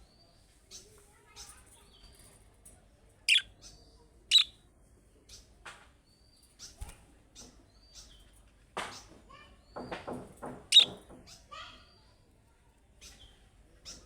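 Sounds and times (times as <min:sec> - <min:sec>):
budgerigars chirping: 0:04.3 - 0:04.5, 0:10.7 - 0:11.0.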